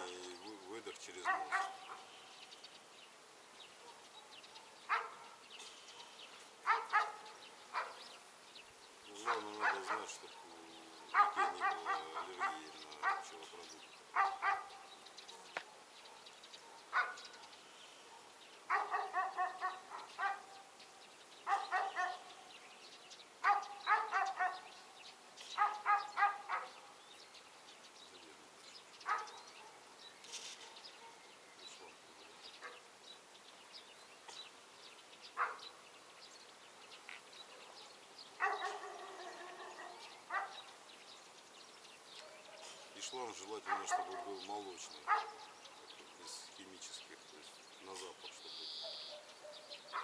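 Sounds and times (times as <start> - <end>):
dog barking: 1.1 - 2.1, 3.8 - 5.4, 6.0 - 8.1, 9.1 - 20.7, 21.4 - 22.4, 23.4 - 26.8, 29.0 - 31.3, 32.6 - 32.9, 35.4 - 35.7, 38.4 - 40.7, 42.2 - 46.6, 48.8 - 50.0.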